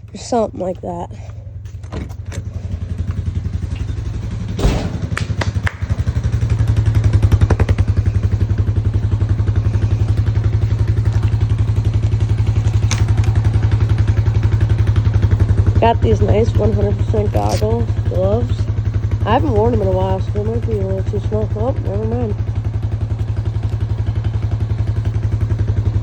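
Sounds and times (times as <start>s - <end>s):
atv engine running: 0.0s - 26.0s
sharp knocks: 4.6s - 6.0s.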